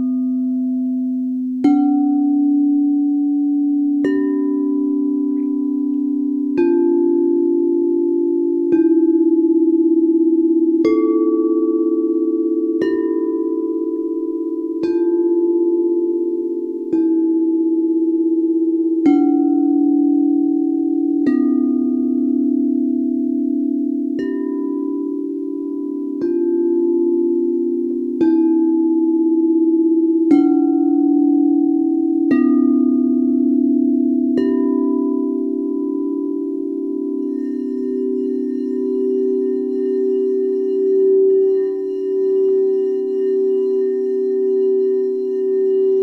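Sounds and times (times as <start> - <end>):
singing bowls ringing: 0.0 - 46.0.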